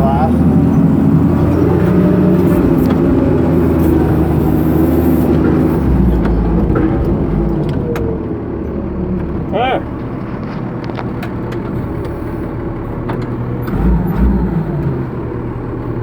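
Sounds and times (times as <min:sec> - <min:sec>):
diesel engine rumbling: 0:00.0 - 0:16.0
sharp clanks and rattles: 0:05.1 - 0:14.3.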